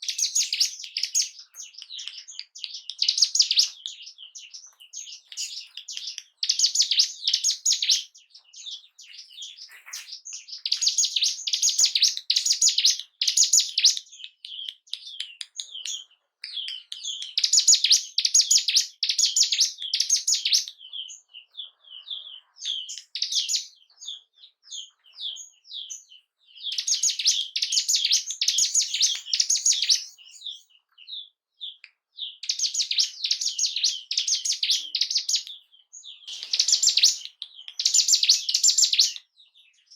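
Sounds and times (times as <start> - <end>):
bird high-pitched chattering song: 0.0 - 39.9
soft bird chirps: 0.0 - 39.9.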